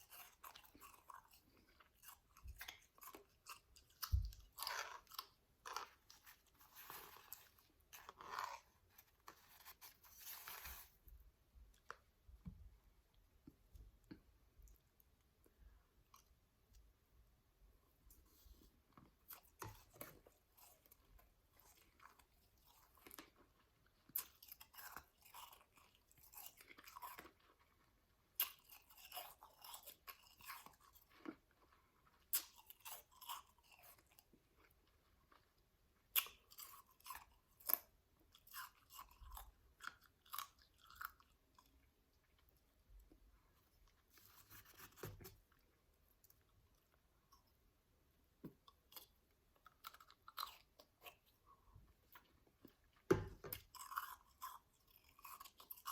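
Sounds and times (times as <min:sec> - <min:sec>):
chewing shaved ice: 0:00.0 - 0:10.9, 0:19.1 - 0:43.0, 0:48.6 - 0:55.9.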